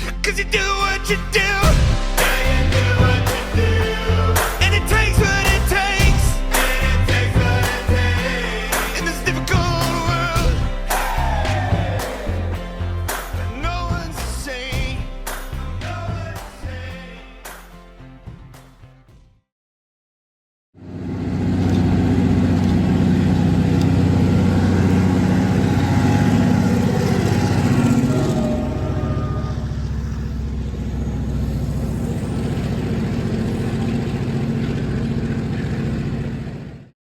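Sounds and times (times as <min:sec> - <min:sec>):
diesel locomotive engine running: 0:00.0 - 0:16.4, 0:20.8 - 0:37.0.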